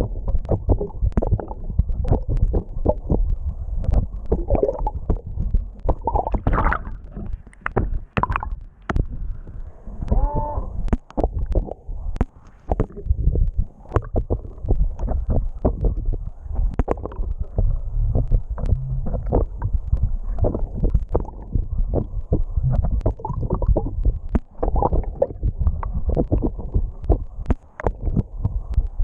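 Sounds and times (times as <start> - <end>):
low underwater rumble: 0.0 - 29.0
sharp clicks and crackles: 0.0 - 29.0
short pitched moan: 9.9 - 10.8, 17.9 - 19.2.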